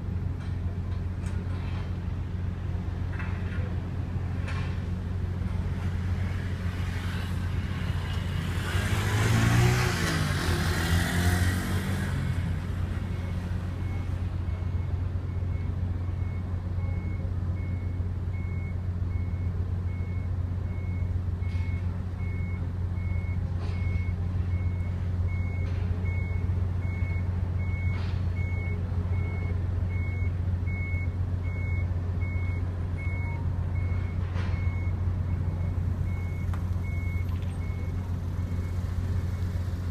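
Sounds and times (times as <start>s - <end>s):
low engine hum: 0.0s - 39.9s
electronic warning beep: 13.1s - 39.5s.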